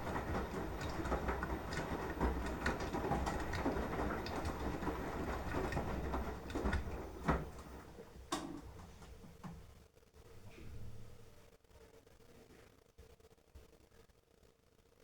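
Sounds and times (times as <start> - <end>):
laundry tumbling knocks: 0.0 - 9.6
washing machine drum rumbling: 0.0 - 9.7.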